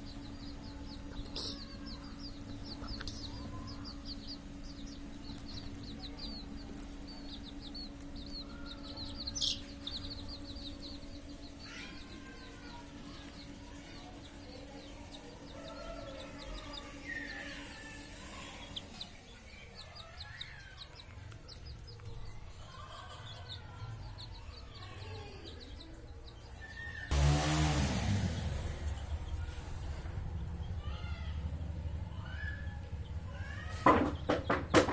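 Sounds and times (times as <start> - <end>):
steady low hum: 0.0 - 24.8
chickens clucking: 0.0 - 27.1.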